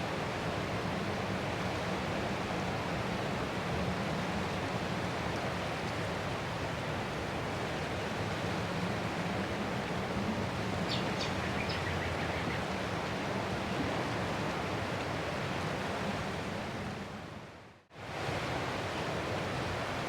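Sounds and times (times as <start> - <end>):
ocean surf washing ashore: 0.0 - 20.0.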